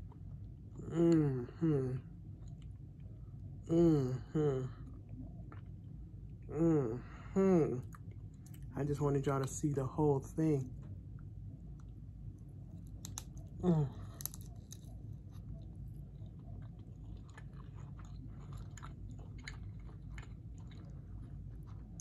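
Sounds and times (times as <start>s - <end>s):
person chewing shrimp: 2.2s - 3.2s, 4.7s - 6.5s, 11.6s - 22.0s
short falling hum of voice: 3.7s - 4.8s.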